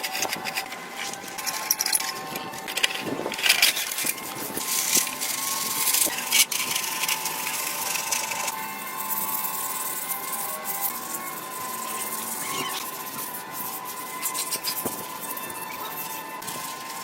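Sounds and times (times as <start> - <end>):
hand tool scraping a surface: 0.0 - 17.0.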